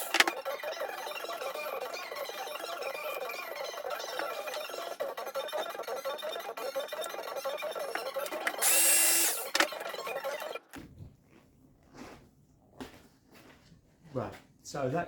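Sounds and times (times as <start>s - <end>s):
electric saw cutting foam: 0.0s - 0.4s, 8.2s - 9.7s.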